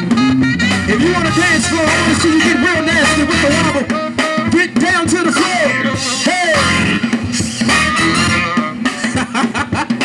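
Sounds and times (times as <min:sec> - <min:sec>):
guitar: 0:00.0 - 0:10.0
live band playing dance music: 0:00.0 - 0:10.0.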